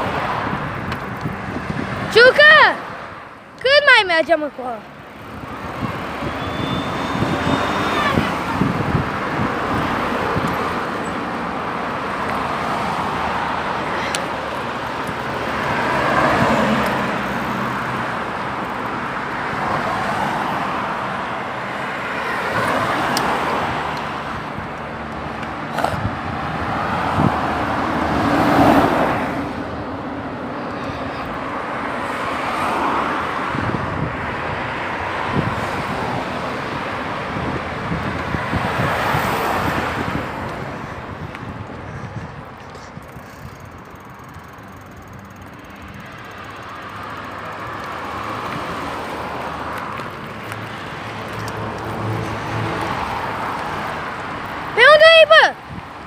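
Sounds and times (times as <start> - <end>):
hum of traffic: 0.0 - 56.0
vehicle passing close: 42.9 - 55.2.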